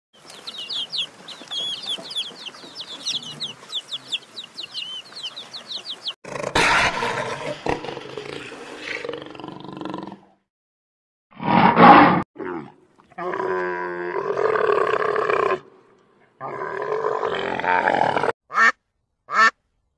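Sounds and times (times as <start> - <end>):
high-pitched chirping of chicks: 0.2 - 6.2
long low-pitched animal call: 12.4 - 15.8.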